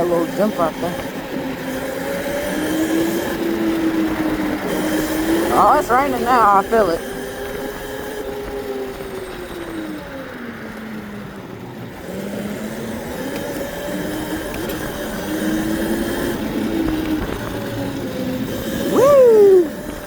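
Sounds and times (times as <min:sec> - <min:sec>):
electric bike motor whining: 0:00.0 - 0:20.0
wind: 0:00.0 - 0:20.0
tyre noise: 0:15.6 - 0:20.0.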